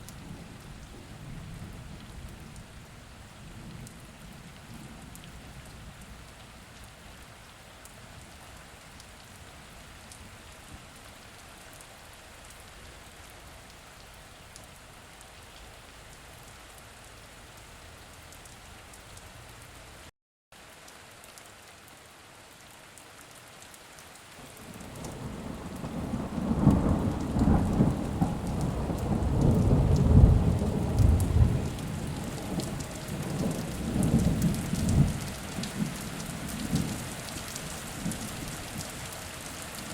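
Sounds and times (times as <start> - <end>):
steady rain falling: 0.0 - 39.9
thunder rolling: 25.2 - 35.9.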